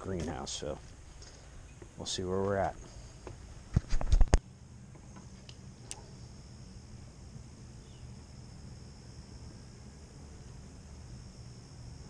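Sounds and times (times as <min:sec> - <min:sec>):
faint low hum: 0:00.0 - 0:12.0
insect drone: 0:00.0 - 0:12.0.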